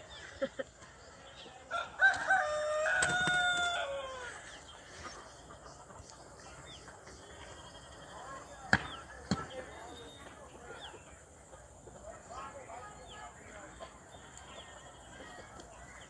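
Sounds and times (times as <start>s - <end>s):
rooster crowing: 1.7s - 4.4s.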